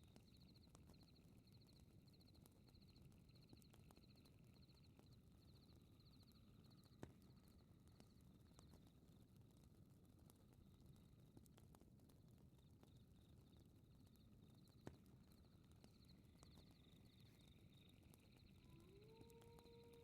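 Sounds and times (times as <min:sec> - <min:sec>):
fireplace crackling: 0:00.0 - 0:20.0
wolf howling: 0:18.6 - 0:20.0.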